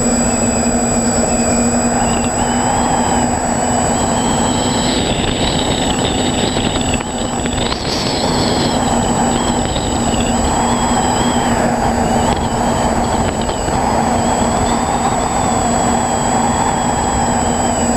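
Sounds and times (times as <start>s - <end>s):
quadcopter motors whining: 0.0s - 17.9s
rush of air noise: 0.0s - 17.9s.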